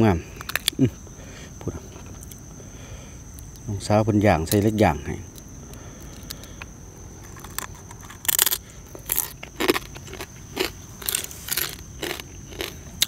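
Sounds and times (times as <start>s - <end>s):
crab shell crunching: 5.3s - 13.0s.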